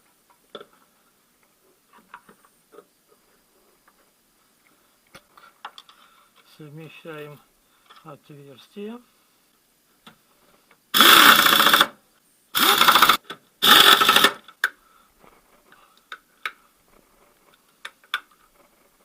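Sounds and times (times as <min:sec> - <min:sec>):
power tool spinning up: 0:11.0 - 0:11.9, 0:12.6 - 0:14.4.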